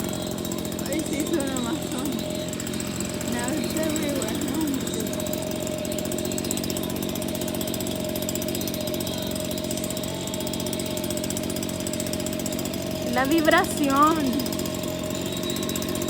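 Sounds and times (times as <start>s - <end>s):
constant motor hum: 0.0s - 16.0s
rapid mechanical rattle: 0.0s - 16.0s.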